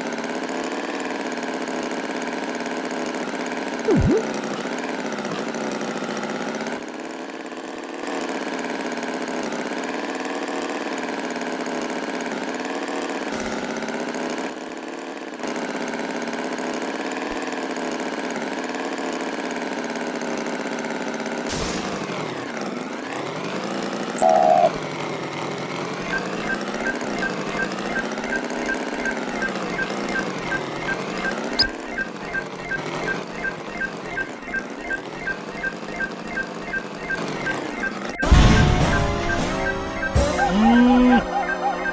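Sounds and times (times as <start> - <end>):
short loud beep: 3.9 - 4.3, 24.2 - 24.7, 36.7 - 41.9.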